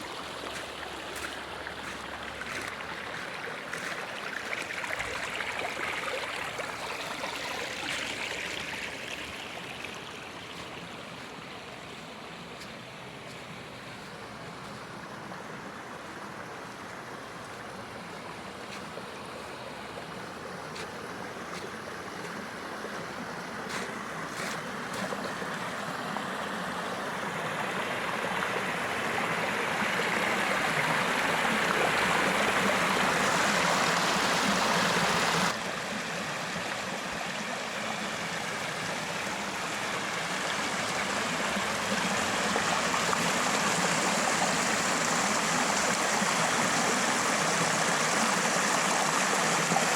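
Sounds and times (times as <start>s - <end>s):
water splashing over waterfall: 16.0s - 49.9s.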